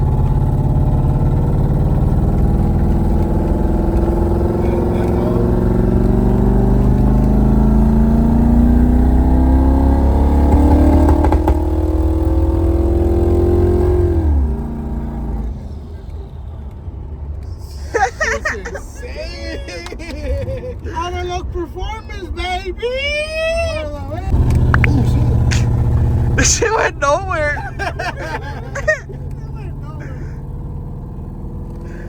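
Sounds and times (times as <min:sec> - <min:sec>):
car engine revving: 0:00.0 - 0:17.4, 0:24.0 - 0:32.0.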